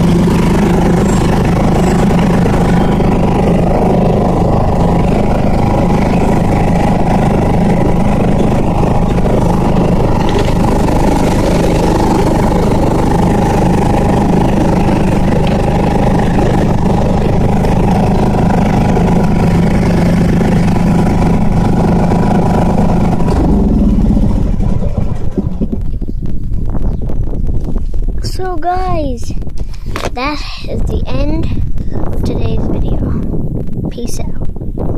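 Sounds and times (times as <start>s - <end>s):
ride-on lawn mower engine running: 0.0s - 26.3s.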